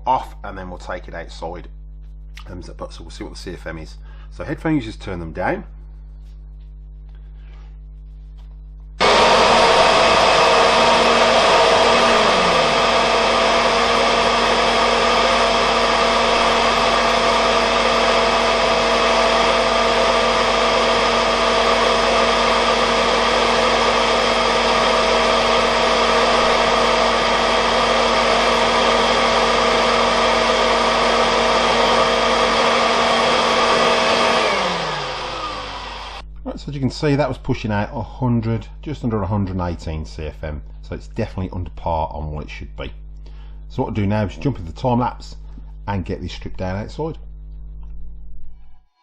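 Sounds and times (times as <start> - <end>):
vacuum cleaner motor whining: 9.0 - 36.3.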